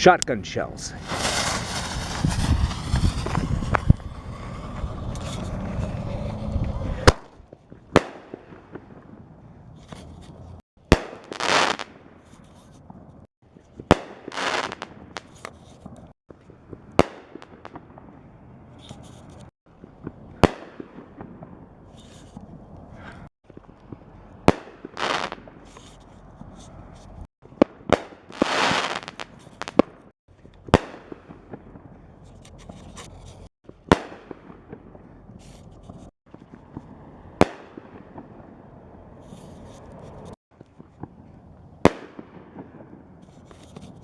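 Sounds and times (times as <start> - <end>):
firework hissing: 0.8 - 6.6.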